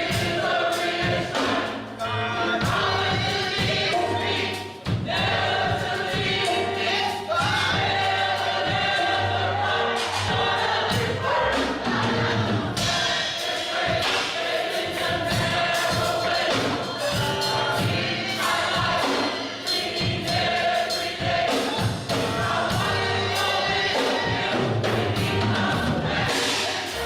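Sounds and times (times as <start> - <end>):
drums keeping a steady beat: 0.0 - 27.0
gospel choir singing: 0.0 - 27.0
bass: 1.1 - 12.9, 21.8 - 27.0.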